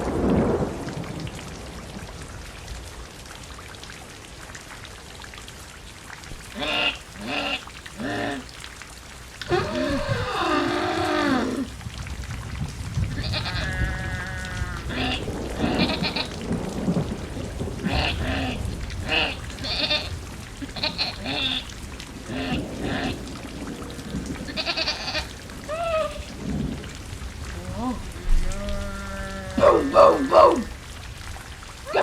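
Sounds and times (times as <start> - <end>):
low rumble of thunder: 0.0 - 3.0, 9.4 - 31.7
steady rain: 0.0 - 32.0
short pitched animal calls: 6.5 - 8.5, 9.4 - 11.7, 20.7 - 21.7.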